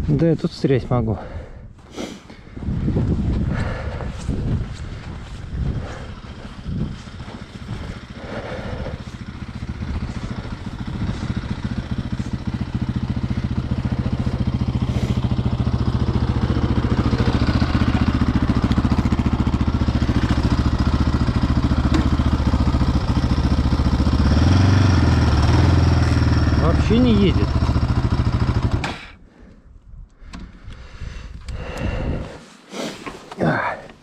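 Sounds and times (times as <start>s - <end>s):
quad bike engine revving: 5.7s - 29.1s.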